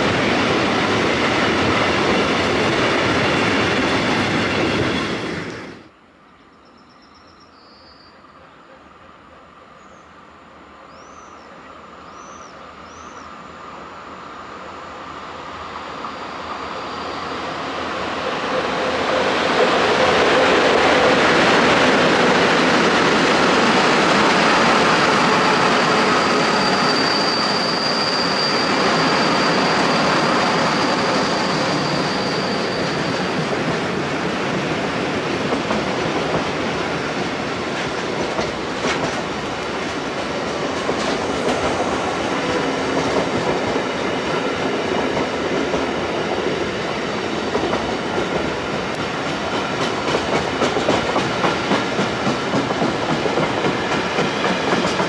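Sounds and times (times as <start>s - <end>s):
train wheels running over rails: 0.0s - 5.9s, 15.5s - 55.0s
high wheel squeal: 24.5s - 33.4s.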